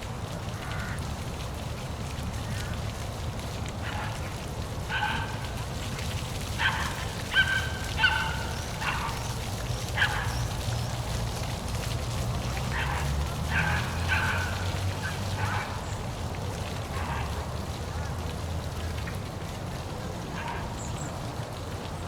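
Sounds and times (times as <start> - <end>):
falling water rushing: 0.0 - 22.0
birds calling: 6.6 - 11.1.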